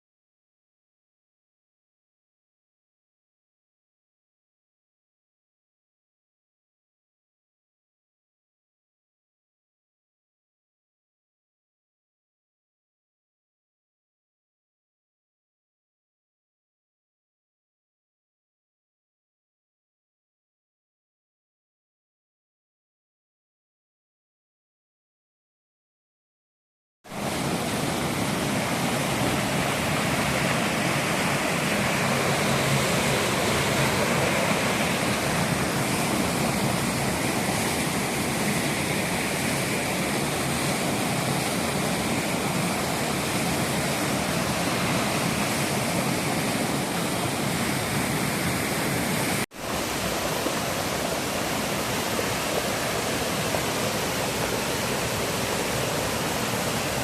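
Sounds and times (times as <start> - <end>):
waterfall roar: 27.1 - 57.0.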